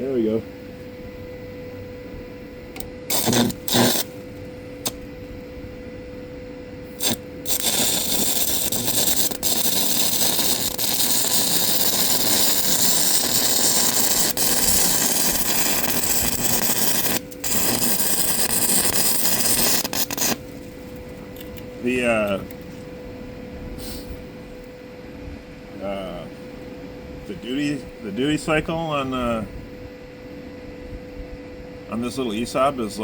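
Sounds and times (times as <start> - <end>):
steady welding arc noise: 0.0 - 0.5, 2.7 - 5.4, 6.8 - 22.6
welding arc strikes: 2.8 - 5.1, 6.9 - 20.7.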